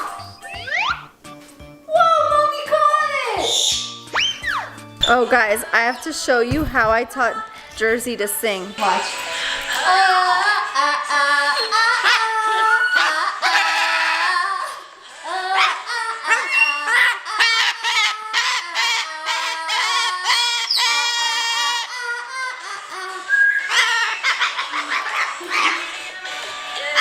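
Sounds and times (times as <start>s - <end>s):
parrot squawking and warbling: 0.0s - 1.2s, 3.4s - 6.1s, 12.0s - 14.5s, 15.3s - 22.4s, 23.6s - 26.1s.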